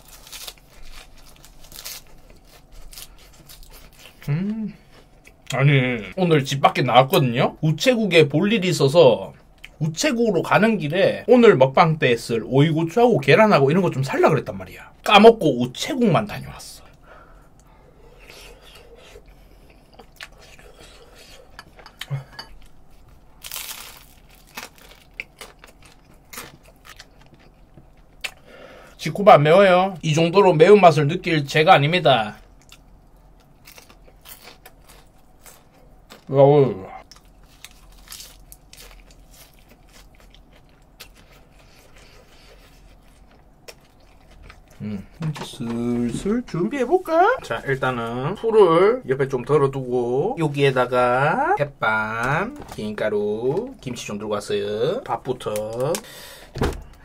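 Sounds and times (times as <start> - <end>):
chewing crunches: 23.4 - 28.4, 32.6 - 36.3, 37.0 - 44.9
breathy hiss: 56.0 - 57.0.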